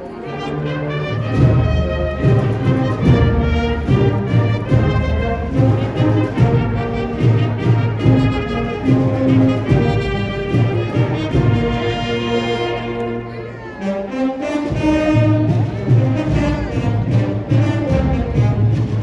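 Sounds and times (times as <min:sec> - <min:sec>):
trumpets and trombones playing chords: 0:00.0 - 0:19.0
steady low drum beat: 0:01.2 - 0:12.8.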